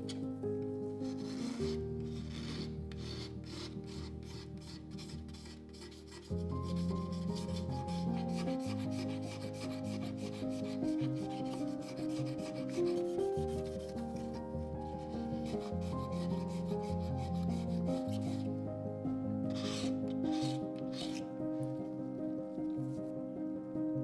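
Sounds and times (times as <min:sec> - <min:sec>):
soft background music: 0:00.0 - 0:24.0
brush scrubbing: 0:01.0 - 0:18.5, 0:19.5 - 0:21.3.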